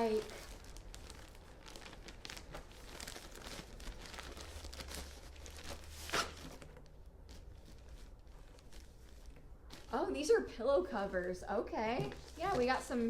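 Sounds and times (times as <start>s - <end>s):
packaging crinkling and tearing: 0.0s - 10.2s.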